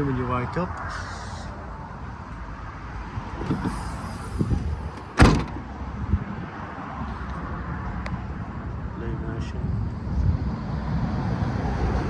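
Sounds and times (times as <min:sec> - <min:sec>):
outdoor rumble: 0:03.2 - 0:06.0
van door slamming: 0:04.9 - 0:05.7
door knocks and rattles: 0:05.2 - 0:05.6.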